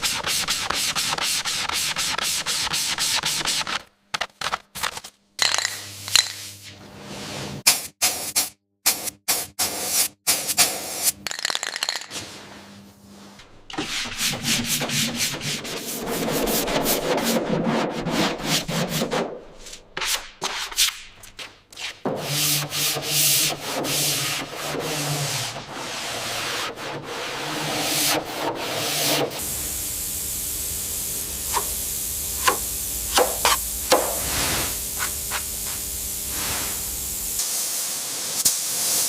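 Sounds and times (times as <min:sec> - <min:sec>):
power sander scraping hiss: 0:29.0 - 0:39.0.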